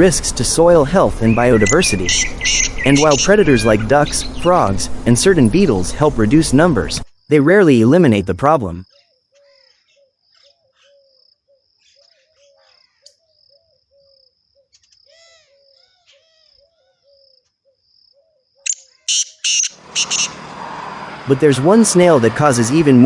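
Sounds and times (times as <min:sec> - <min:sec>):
higher chirps: 0:01.2 - 0:04.7, 0:18.6 - 0:20.5
insects chirping: 0:01.2 - 0:05.4, 0:07.0 - 0:20.6
loud sharp sounds: 0:18.7 - 0:21.2
short low calls: 0:19.2 - 0:20.5.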